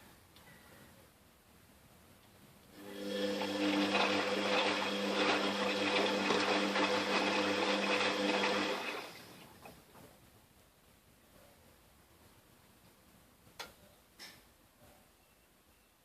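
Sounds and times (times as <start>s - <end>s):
washing machine motor humming: 2.8s - 9.6s.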